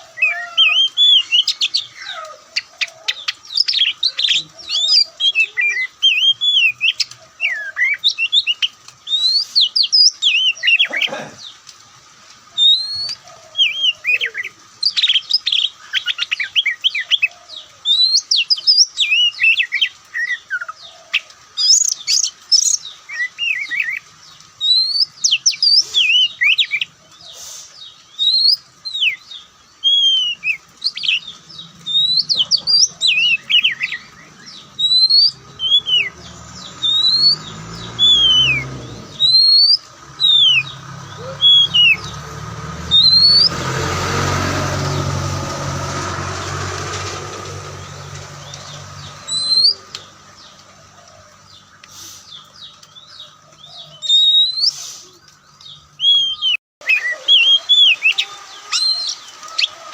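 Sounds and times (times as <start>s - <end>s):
bird singing whistles: 12.6s - 16.8s, 24.6s - 26.8s, 28.2s - 31.2s, 31.9s - 42.1s, 42.9s - 43.5s, 49.3s - 49.8s, 54.0s - 54.9s, 56.0s - 59.8s.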